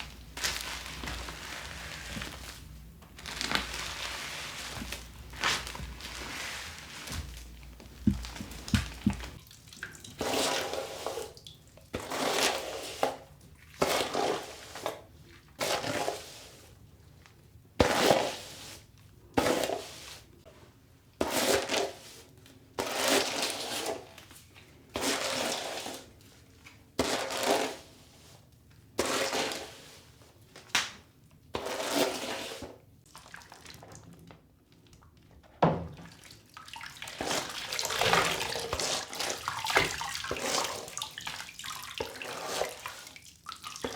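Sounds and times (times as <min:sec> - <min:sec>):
tap water splashing: 0:07.1 - 0:10.4, 0:35.6 - 0:43.9.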